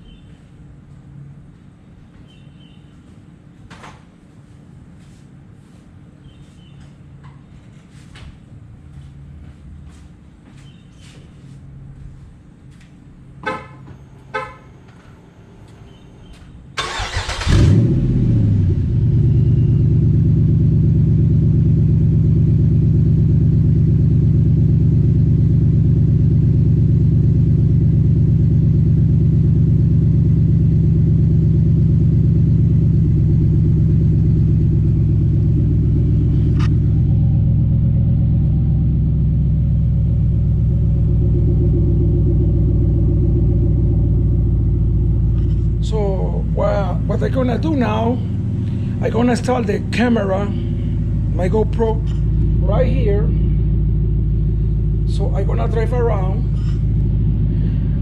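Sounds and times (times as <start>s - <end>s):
car horn chirps: 13.4s - 15.0s
v eight engine starting and idling: 15.9s - 58.0s.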